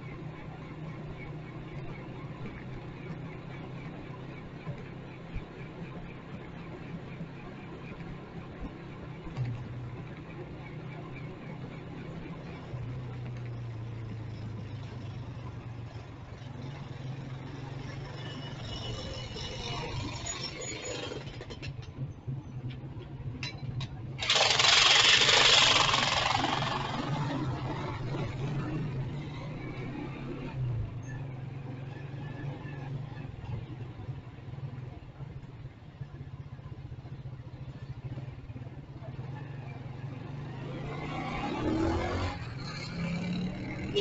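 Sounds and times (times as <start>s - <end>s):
road and engine noise: 0.0s - 44.0s
motorcycle engine idling: 24.2s - 27.4s.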